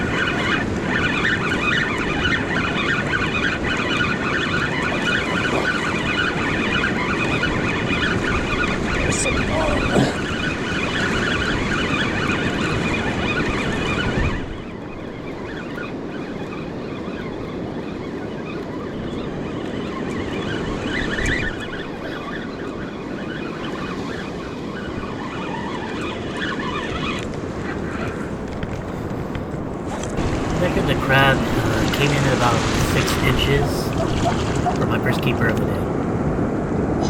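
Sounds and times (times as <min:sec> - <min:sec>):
ocean surf washing: 0:00.0 - 0:12.9, 0:27.5 - 0:36.8
wind buffeting microphone: 0:27.4 - 0:36.8.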